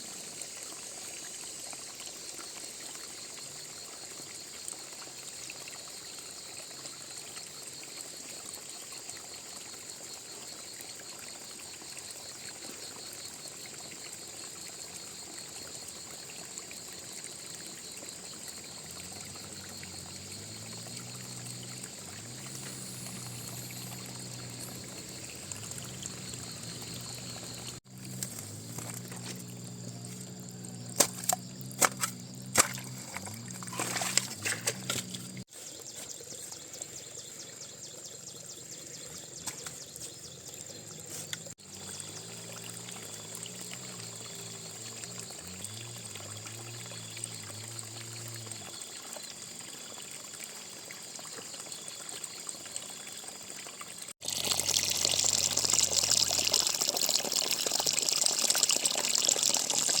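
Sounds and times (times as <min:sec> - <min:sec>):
water pouring and trickling: 0:00.0 - 1:00.0
water rushing and gushing: 0:15.6 - 0:35.5, 0:40.8 - 0:49.6, 0:52.6 - 1:00.0.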